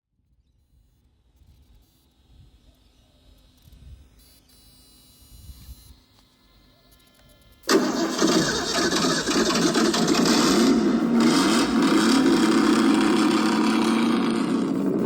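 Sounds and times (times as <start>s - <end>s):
rc car engine running: 7.1s - 15.0s.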